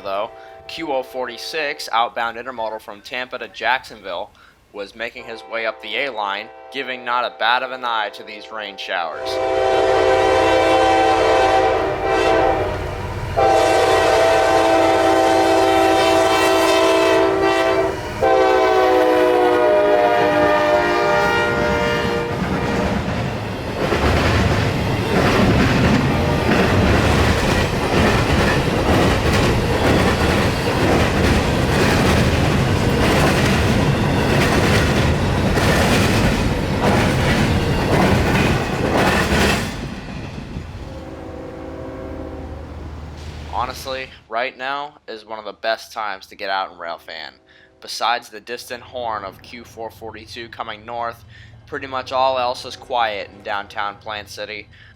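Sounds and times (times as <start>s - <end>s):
locomotive horn blasts: 0.1s - 1.6s, 5.2s - 7.0s, 9.2s - 23.1s, 40.8s - 42.8s
train cars rumbling: 9.2s - 44.2s
wheels clattering over rail joints: 23.1s - 40.8s.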